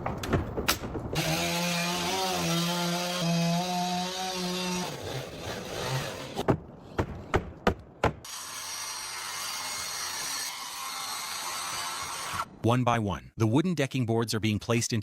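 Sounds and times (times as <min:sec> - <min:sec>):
power saw cutting wood: 0:01.2 - 0:06.4, 0:08.3 - 0:12.5.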